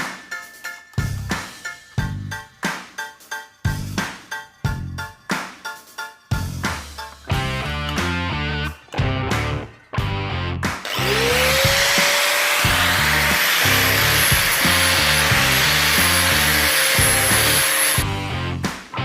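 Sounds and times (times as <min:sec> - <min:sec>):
guitar music: 0:06.5 - 0:19.0
electric power tool whine: 0:10.8 - 0:18.0.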